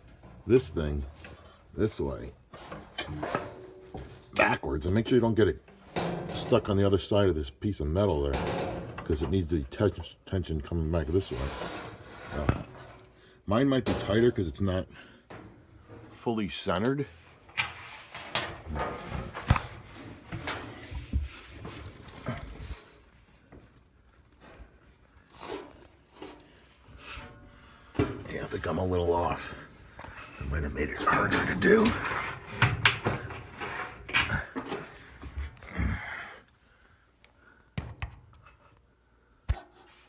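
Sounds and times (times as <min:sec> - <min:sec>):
rustling: 0:15.3 - 0:35.7.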